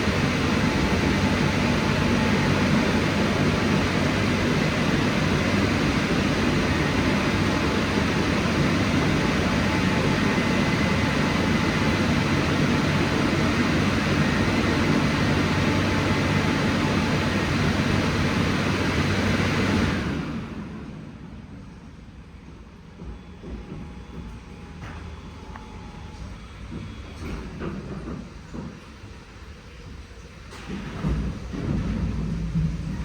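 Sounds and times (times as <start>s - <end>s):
car wash dryer blowers: 0.0s - 21.5s.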